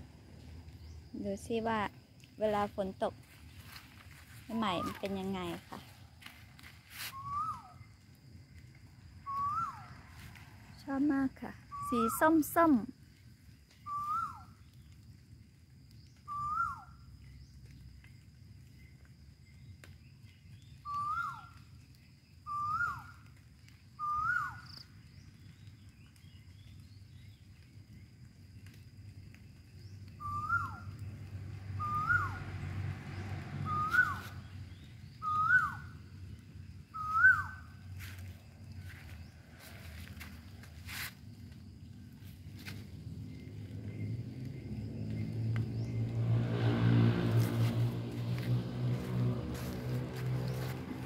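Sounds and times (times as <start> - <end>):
bird whistled call: 7.0 - 7.9, 9.2 - 9.9, 11.7 - 12.2, 13.8 - 14.6, 16.2 - 16.9, 20.8 - 21.6, 22.4 - 23.2, 24.0 - 24.9, 30.1 - 30.9, 31.8 - 32.4, 33.6 - 35.9, 36.9 - 37.8.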